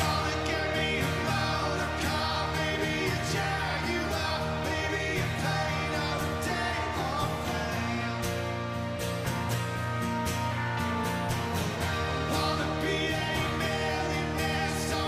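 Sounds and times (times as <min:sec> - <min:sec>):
person singing: 0:00.0 - 0:08.8, 0:12.0 - 0:15.0
live rock band playing: 0:00.0 - 0:15.0.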